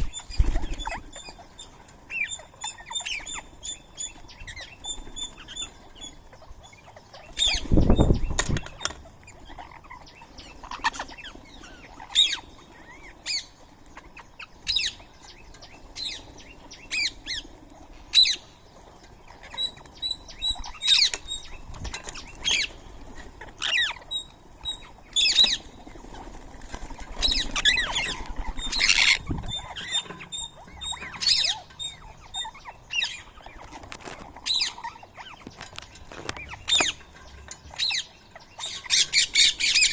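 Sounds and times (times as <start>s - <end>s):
wings flapping: 0.0s - 1.4s, 24.7s - 30.3s
parakeets squawking: 0.0s - 18.6s, 19.2s - 39.9s.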